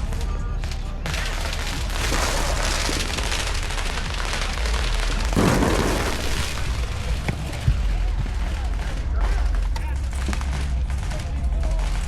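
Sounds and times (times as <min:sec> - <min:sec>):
fireworks crackling: 0:00.6 - 0:09.0
low rumble of firework booms: 0:01.8 - 0:09.0.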